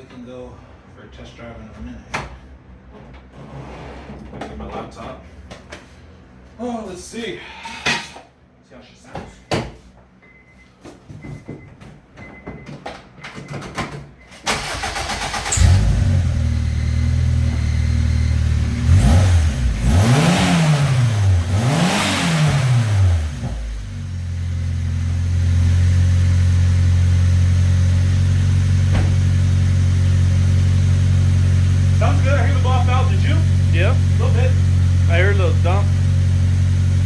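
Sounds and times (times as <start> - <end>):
car engine starting and idling: 14.2 - 37.0
engine revving: 14.5 - 37.0.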